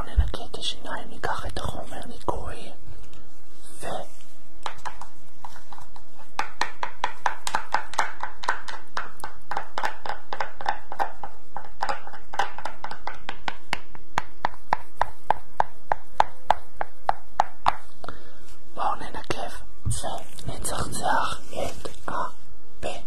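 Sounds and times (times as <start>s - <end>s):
tapping and clicking on object: 4.6s - 17.8s.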